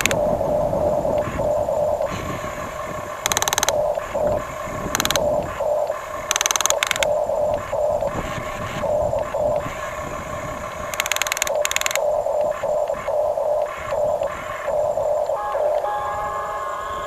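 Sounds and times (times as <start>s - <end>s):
pulsing electronic engine tone: 0.0s - 17.0s
harsh buzzes of toy motor and gears: 3.2s - 3.7s, 4.9s - 5.2s, 6.3s - 7.0s, 10.9s - 12.0s.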